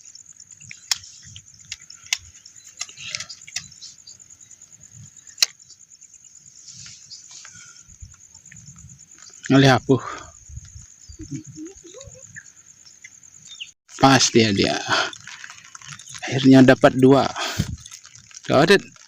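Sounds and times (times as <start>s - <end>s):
insects chirring: 0.0s - 19.0s
sharp clicks: 5.4s - 5.6s.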